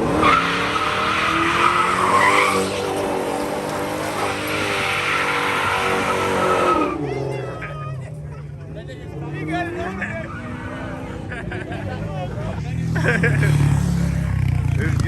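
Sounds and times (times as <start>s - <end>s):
tyres squealing: 0.1s - 7.8s.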